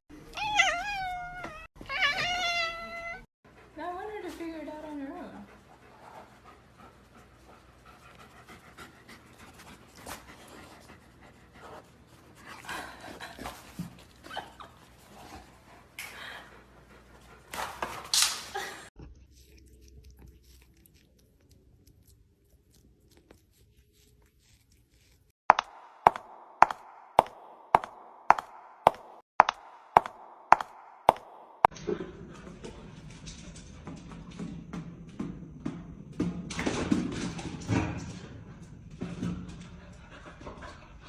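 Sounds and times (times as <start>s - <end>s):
dog panting hard: 3.5s - 4.2s, 4.9s - 14.1s, 14.9s - 18.1s, 39.6s - 41.0s
sharp clicks: 25.5s - 31.7s.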